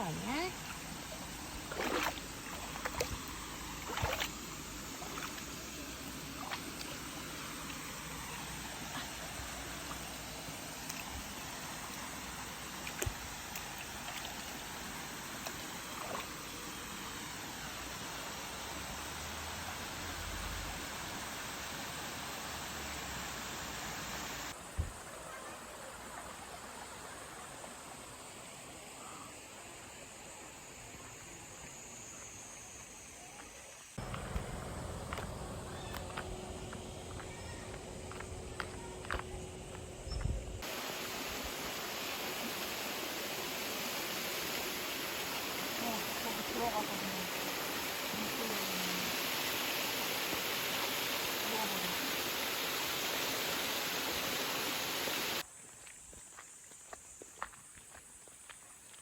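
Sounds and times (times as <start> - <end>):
water splashes: 0.0 - 20.7, 40.6 - 55.9
stream running over rocks: 0.0 - 39.9, 40.6 - 59.0.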